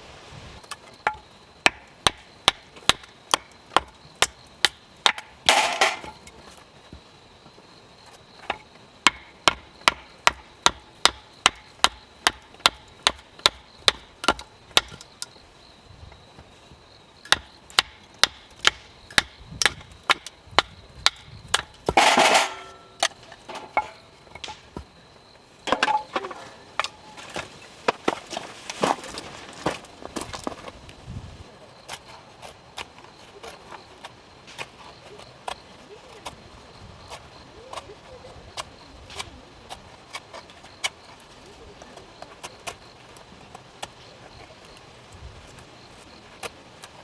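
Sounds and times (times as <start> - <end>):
hard striking knocks: 8.5 - 15.1, 17.3 - 22.7
scraping rustle: 21.4 - 47.0.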